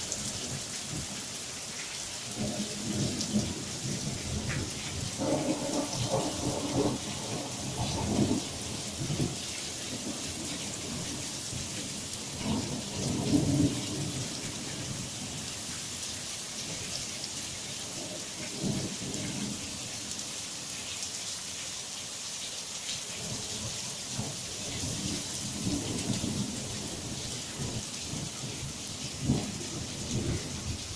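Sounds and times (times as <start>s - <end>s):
heavy rain hissing: 0.0s - 30.9s
thunder rolling: 5.1s - 9.4s.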